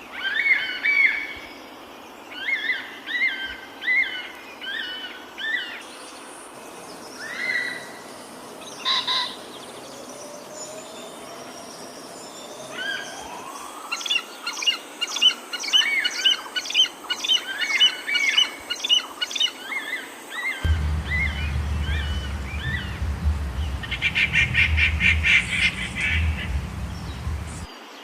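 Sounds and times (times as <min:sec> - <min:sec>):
wild birds chirping and whistling: 0:20.6 - 0:27.7.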